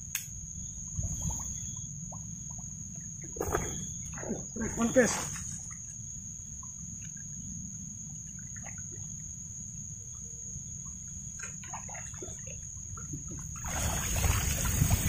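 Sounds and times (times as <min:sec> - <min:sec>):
faint small ticks: 0:00.0 - 0:03.1
high-pitched insect trill: 0:00.0 - 0:15.0
wind rumble on microphone: 0:00.4 - 0:05.7, 0:12.9 - 0:15.0.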